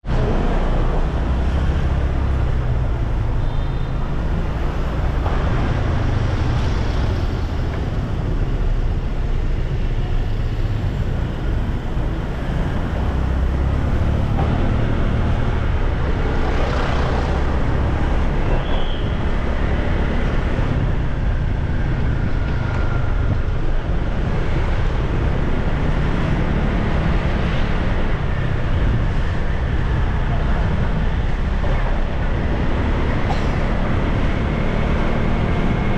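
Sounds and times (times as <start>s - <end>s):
road traffic: 0.0s - 35.9s
wind rush on microphone: 14.8s - 35.9s.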